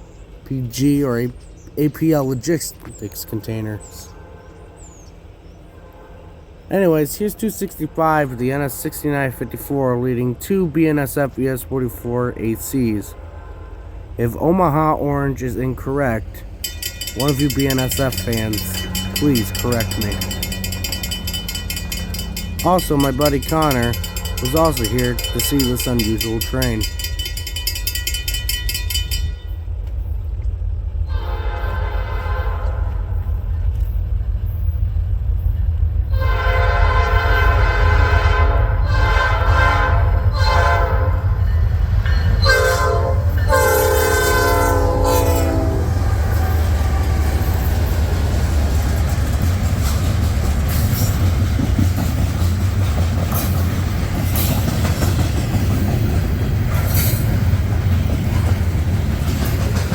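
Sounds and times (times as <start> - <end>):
train rumbling past: 0.0 - 59.9
train air horn: 3.8 - 4.8, 5.7 - 6.5, 13.1 - 14.2, 31.0 - 33.3, 36.1 - 41.4, 42.4 - 47.6
wheels clattering over rail joints: 14.4 - 31.1, 40.3 - 59.9.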